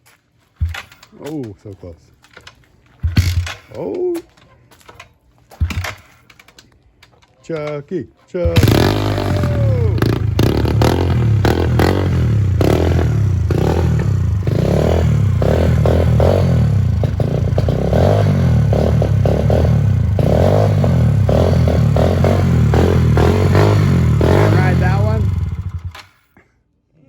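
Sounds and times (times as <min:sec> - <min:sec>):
small motorcycle engine running: 0:08.5 - 0:26.0.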